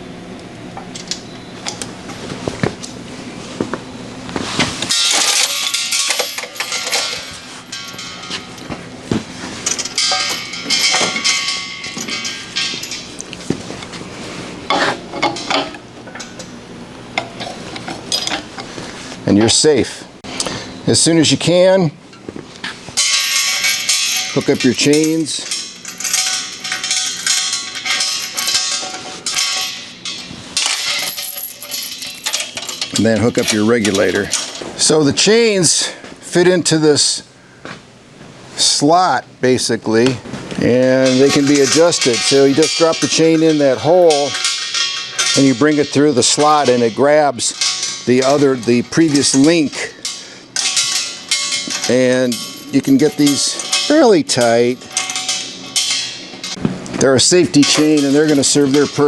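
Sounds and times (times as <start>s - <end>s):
metal gas cylinder clanking on cart: 4.9s - 8.8s, 9.6s - 13.3s, 23.0s - 34.9s, 40.6s - 59.0s
metallic knocks and ringing: 4.9s - 13.2s, 41.0s - 59.0s.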